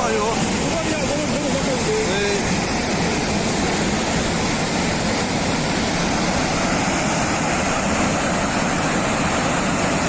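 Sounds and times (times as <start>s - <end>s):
floodwater rushing: 0.0s - 10.0s.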